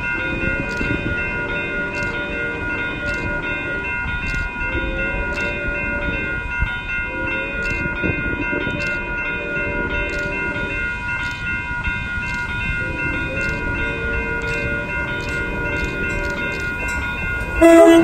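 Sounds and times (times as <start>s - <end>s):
high ringing tones: 0.0s - 18.0s
train rumbling by: 0.0s - 18.0s
sharp ticks: 0.6s - 1.3s, 1.9s - 2.3s, 3.0s - 5.6s, 7.6s - 9.1s, 10.0s - 17.6s.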